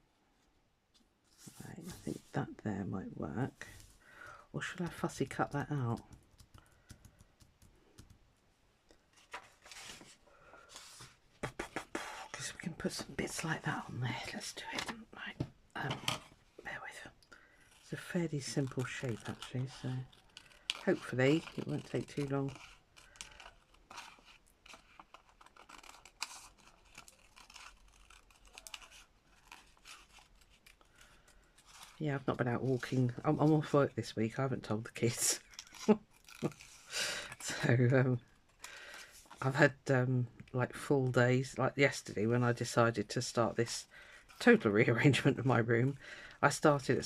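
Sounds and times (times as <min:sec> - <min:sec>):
paper rustling: 0:09.1 - 0:13.5, 0:17.9 - 0:33.8.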